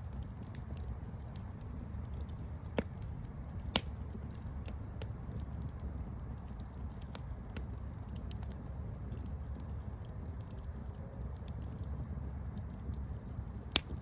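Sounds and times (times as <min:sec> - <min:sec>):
wood campfire crackling: 0:00.0 - 0:14.0
sharp fire pops: 0:02.1 - 0:05.8, 0:13.6 - 0:14.0.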